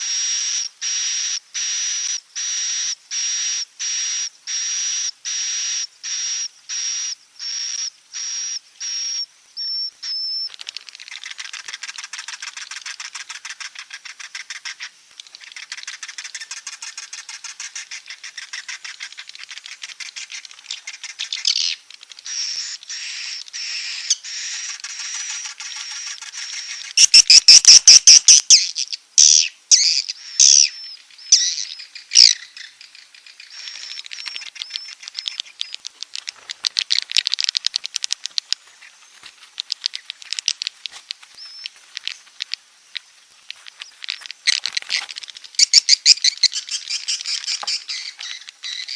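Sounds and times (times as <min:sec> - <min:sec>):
rapid twittering chatter: 0:10.0 - 0:48.9
swiftlets calling: 0:10.4 - 0:48.9.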